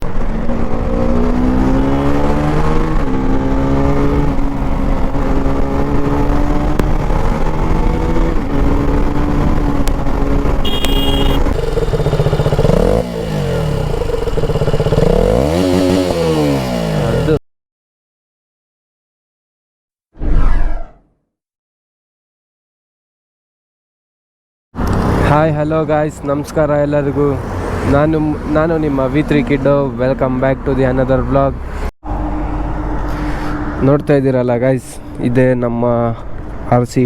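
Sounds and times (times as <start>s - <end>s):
motorcycle engine revving: 0.0s - 17.4s, 24.8s - 25.4s.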